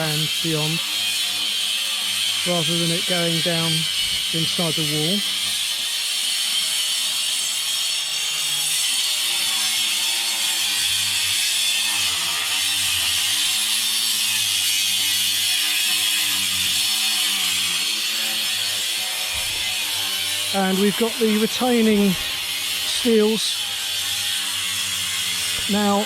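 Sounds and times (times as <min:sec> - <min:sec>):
power tool cutting masonry: 0:00.0 - 0:26.0.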